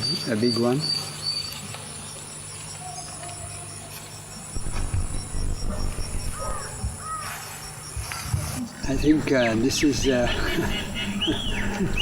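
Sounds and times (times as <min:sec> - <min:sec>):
cricket chirping: 0:00.8 - 0:12.0
low rumbling noise: 0:04.6 - 0:06.9, 0:08.8 - 0:12.0.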